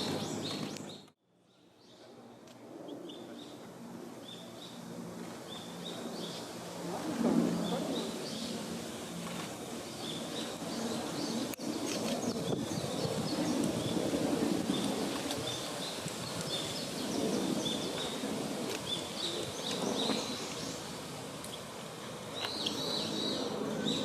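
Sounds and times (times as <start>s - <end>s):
small birds chirping: 0.0s - 2.0s, 7.6s - 21.7s, 22.3s - 24.0s.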